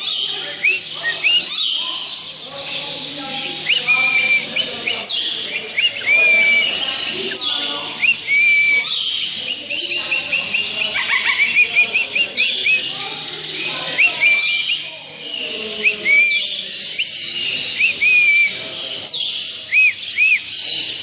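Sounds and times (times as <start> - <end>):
caged birds chirping and whistling: 0.0 - 21.0.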